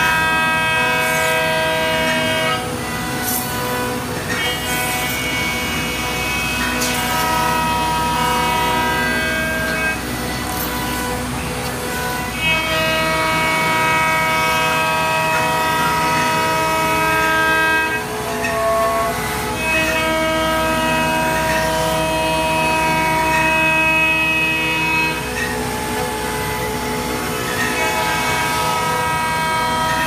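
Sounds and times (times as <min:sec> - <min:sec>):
router spindle high whine: 0:00.0 - 0:30.0.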